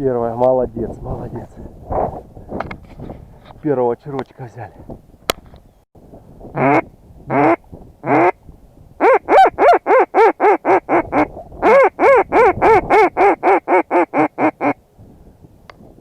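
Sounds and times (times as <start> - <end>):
duck call quacks: 6.6 - 8.4, 9.0 - 14.8.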